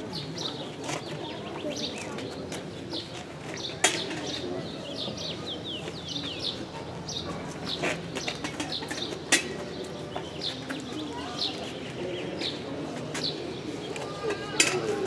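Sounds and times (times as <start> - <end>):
small birds chirping: 0.0 - 14.6
crowd murmur: 0.0 - 15.0.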